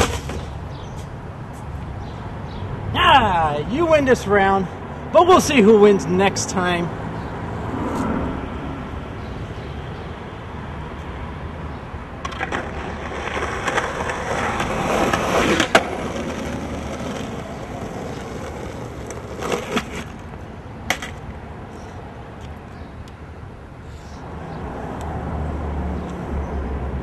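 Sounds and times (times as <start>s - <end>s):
rolling noise: 0.0s - 1.1s, 12.2s - 21.3s.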